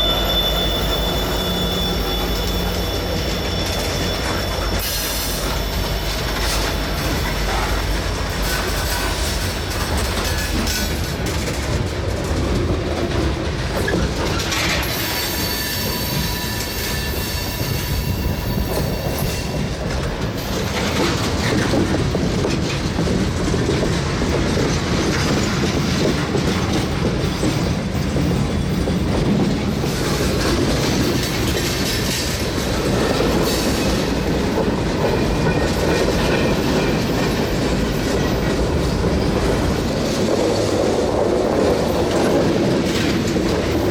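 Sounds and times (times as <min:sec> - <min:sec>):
high wheel squeal: 0:00.0 - 0:07.8, 0:13.9 - 0:19.8
train wheels clicking over rail joints: 0:00.0 - 0:43.9.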